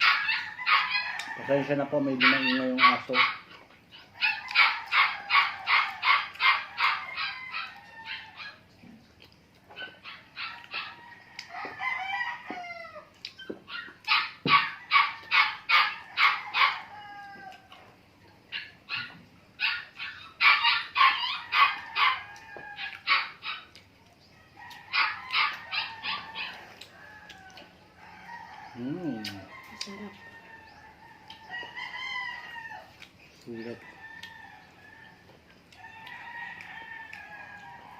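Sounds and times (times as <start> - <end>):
dog barking: 0.0 - 1.0, 2.2 - 3.5, 4.2 - 8.6, 13.7 - 16.9, 18.5 - 22.2.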